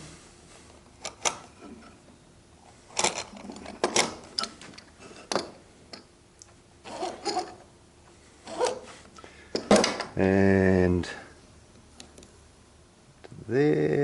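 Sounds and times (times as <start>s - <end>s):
gauge pins scratching wood: 6.8s - 7.6s.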